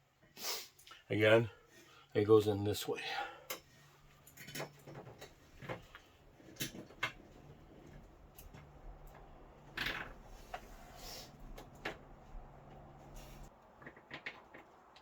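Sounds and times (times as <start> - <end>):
clicks and knocks of hardware: 3.5 - 9.3.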